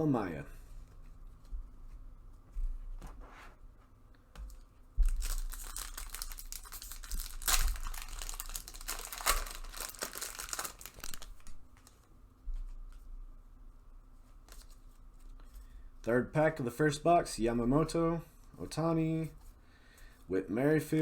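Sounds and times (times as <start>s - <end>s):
card pack wrapper crinkling and tearing: 5.1s - 12.0s.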